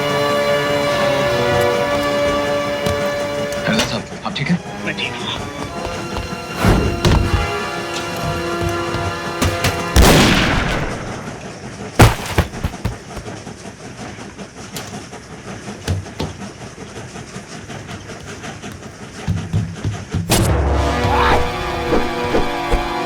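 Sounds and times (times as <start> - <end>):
train rushing: 0.0 - 23.0
gunshots: 9.4 - 11.4.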